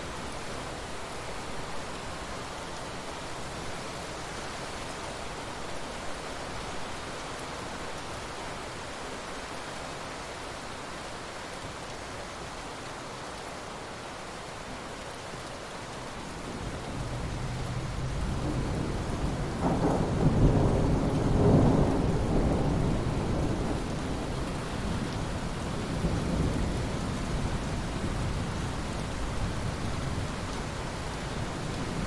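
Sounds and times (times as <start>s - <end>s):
rain hissing on ocean water: 0.0s - 32.0s
rolling thunder: 17.0s - 30.3s.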